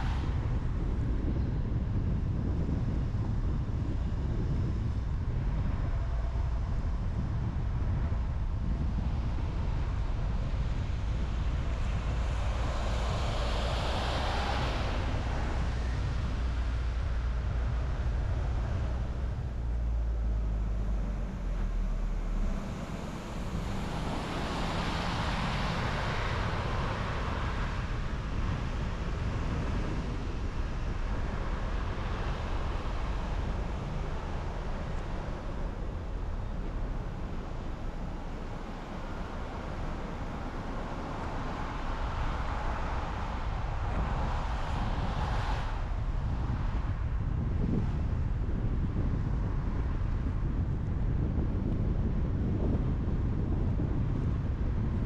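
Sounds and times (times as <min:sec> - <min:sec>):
car tyre rumble: 0:00.0 - 0:55.0
wind rush: 0:00.0 - 0:55.0.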